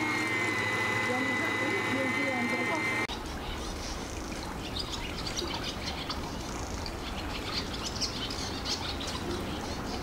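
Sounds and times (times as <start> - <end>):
small birds chirping: 2.3 - 10.0.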